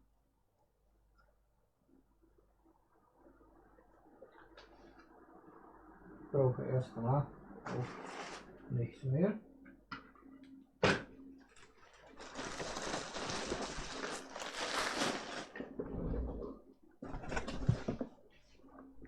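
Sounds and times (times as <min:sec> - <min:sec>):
rustling and scraping: 0:07.7 - 0:08.6, 0:11.6 - 0:18.7.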